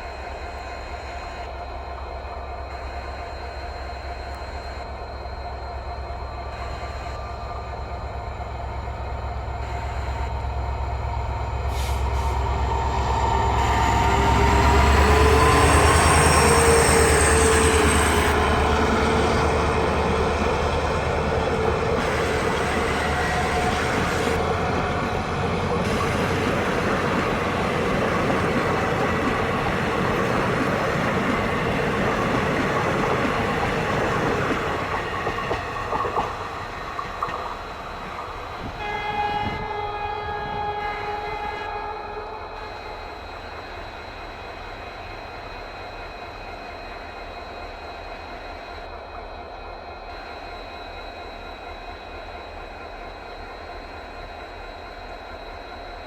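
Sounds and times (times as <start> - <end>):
diesel locomotive engine rumble: 0.0 - 56.0
train coaches rolling: 6.4 - 46.0.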